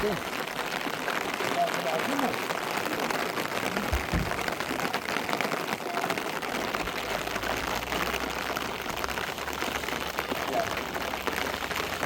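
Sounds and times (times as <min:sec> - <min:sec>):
steady rain falling: 0:00.0 - 0:12.0
dull low thumps: 0:03.8 - 0:04.6.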